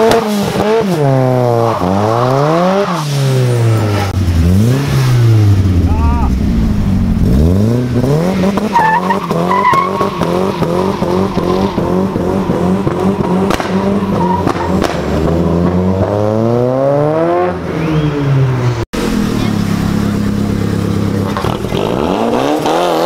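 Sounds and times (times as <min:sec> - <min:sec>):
drift car engine revving: 0:00.0 - 0:23.0
tyres squealing and skidding: 0:01.3 - 0:04.1, 0:08.1 - 0:15.2.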